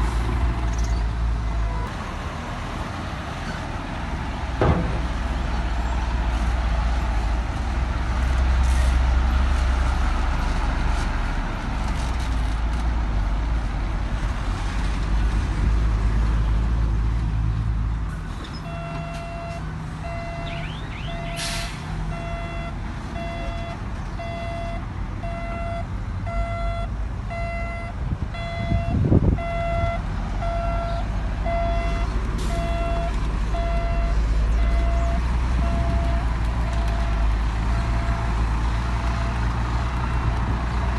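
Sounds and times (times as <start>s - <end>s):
heavy diesel engine rumbling: 0.0s - 40.9s
reversing alarm beeping: 18.7s - 38.3s.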